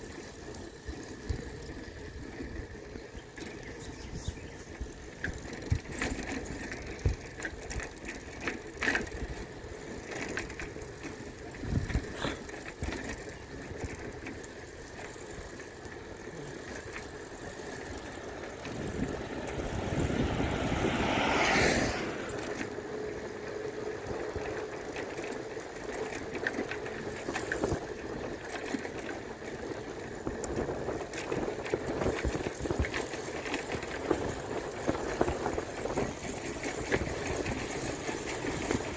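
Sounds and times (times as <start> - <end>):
bicycle road and wind noise: 0.0 - 38.9
bicycle knocks and rattles: 4.8 - 21.0, 24.1 - 38.9
rushing noise: 17.5 - 22.7.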